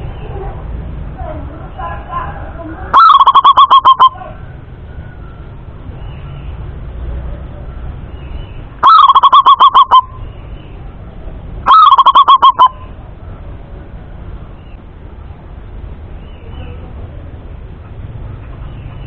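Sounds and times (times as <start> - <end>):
dove cooing: 2.9 - 4.2, 8.8 - 10.1, 11.7 - 12.9.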